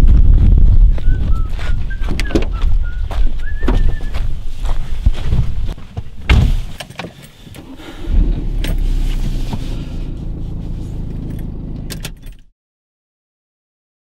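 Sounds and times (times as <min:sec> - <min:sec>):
car engine starting and running: 0:06.4 - 0:12.5
keys jangling: 0:11.2 - 0:12.5.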